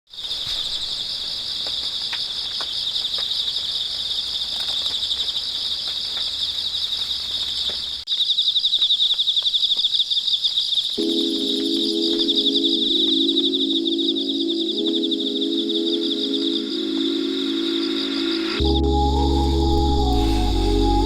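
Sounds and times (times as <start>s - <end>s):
cicadas trilling: 0.1s - 21.0s.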